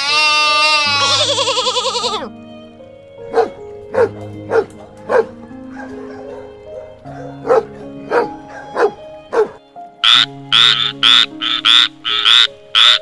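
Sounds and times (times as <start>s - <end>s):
background music: 0.0s - 13.0s
dog barking: 3.3s - 9.6s.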